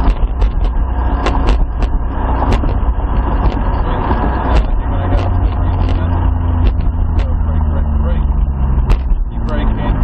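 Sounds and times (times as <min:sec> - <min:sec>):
car engine rumble from inside: 0:00.0 - 0:10.0.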